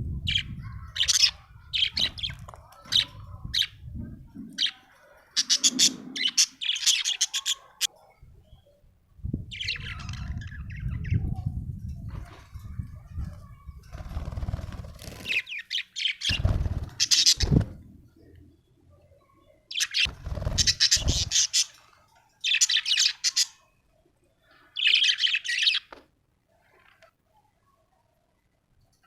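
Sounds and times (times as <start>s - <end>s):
budgerigar chirping and chattering: 19.7s - 21.7s.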